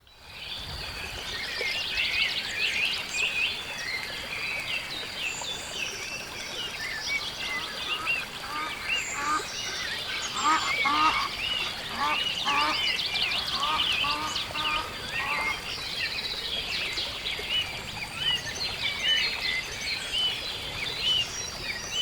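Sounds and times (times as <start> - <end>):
small birds chirping: 7.0 - 17.5
waterfowl honking: 8.0 - 9.4, 10.3 - 11.3, 11.9 - 15.6.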